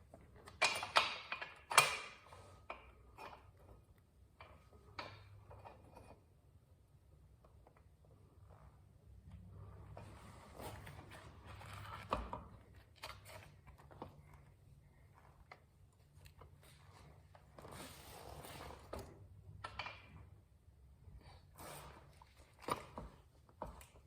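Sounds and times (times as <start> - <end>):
parts clicking and knocking: 0.4 - 6.1.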